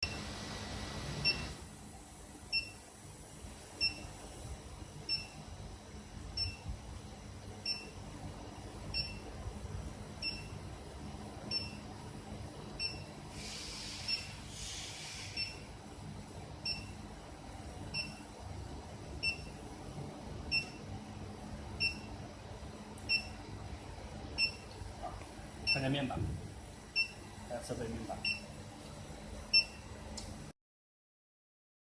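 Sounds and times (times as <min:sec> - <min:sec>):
machine beeping: 0:01.2 - 0:01.6, 0:03.8 - 0:04.2, 0:08.9 - 0:09.3, 0:10.2 - 0:10.6, 0:11.4 - 0:11.9, 0:12.8 - 0:13.1, 0:14.0 - 0:14.4, 0:15.2 - 0:15.7, 0:16.6 - 0:17.0, 0:17.9 - 0:18.3, 0:19.2 - 0:19.6, 0:20.5 - 0:20.9, 0:21.8 - 0:22.1, 0:23.0 - 0:23.4, 0:24.4 - 0:24.7, 0:25.6 - 0:26.1, 0:26.9 - 0:27.3, 0:28.1 - 0:28.6, 0:29.5 - 0:29.9
brief hiss: 0:13.4 - 0:15.4.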